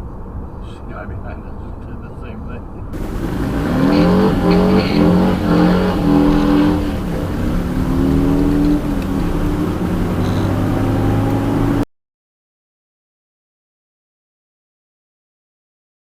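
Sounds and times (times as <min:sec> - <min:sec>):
truck diesel engine accelerating: 0:03.0 - 0:11.9.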